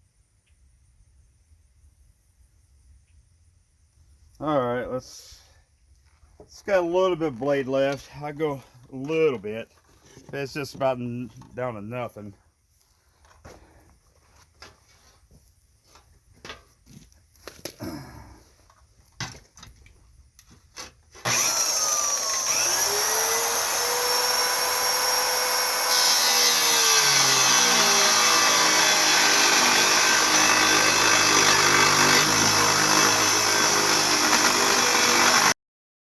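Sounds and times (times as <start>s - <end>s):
power saw cutting steel: 21.2s - 35.6s.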